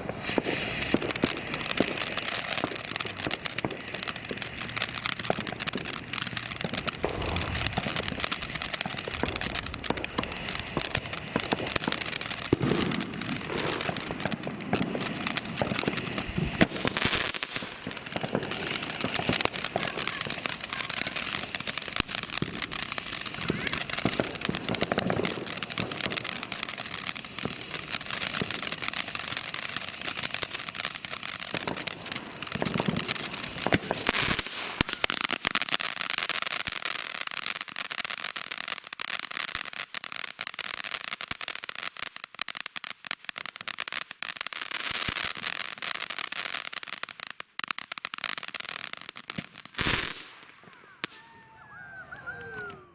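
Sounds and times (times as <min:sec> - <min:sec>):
firework fountain hissing and crackling: 0:00.0 - 0:52.9
loud firework bang: 0:06.6 - 0:11.9.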